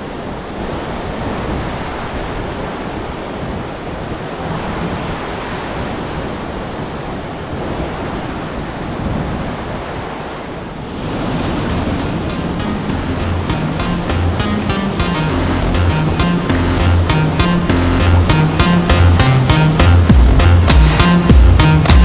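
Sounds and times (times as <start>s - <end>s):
river rapids rushing: 0.0s - 22.0s
wind on microphone: 0.0s - 22.0s
music: 11.4s - 22.0s.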